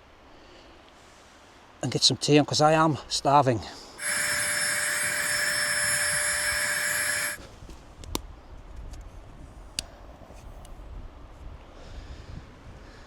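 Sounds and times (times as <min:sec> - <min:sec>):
sharp clicks: 0:04.0 - 0:07.4
small electric motor whirring: 0:04.0 - 0:07.4.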